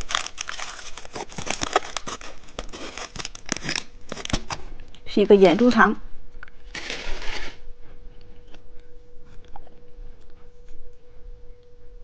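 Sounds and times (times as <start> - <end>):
candy wrapper crinkling: 0.0 - 4.6.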